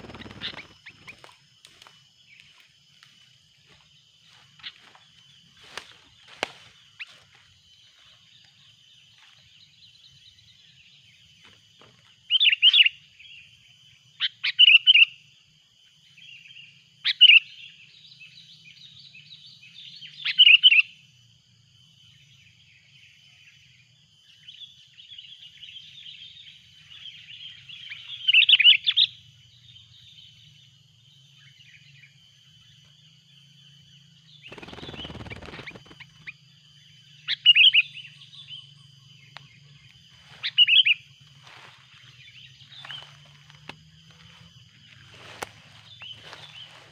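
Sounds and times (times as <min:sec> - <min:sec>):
bulbuls calling in chattering bursts: 0:00.0 - 0:01.3.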